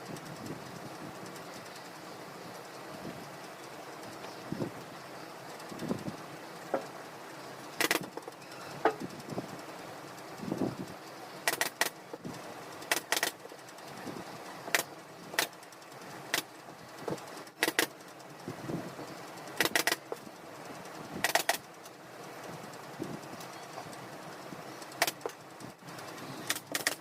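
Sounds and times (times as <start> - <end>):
staple gun firing: 7.8 - 8.1, 11.5 - 12.0, 12.9 - 13.4, 17.6 - 17.9, 19.6 - 20.0, 21.2 - 21.6, 26.5 - 27.0.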